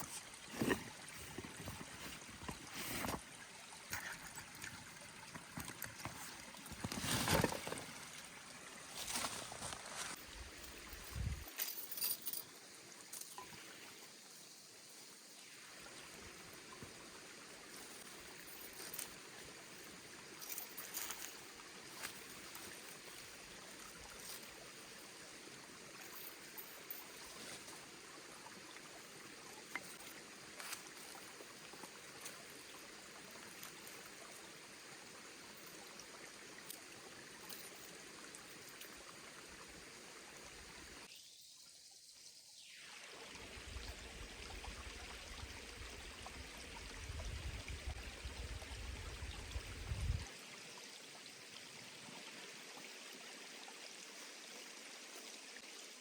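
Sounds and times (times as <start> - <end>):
forest stream running: 0.0 - 56.0.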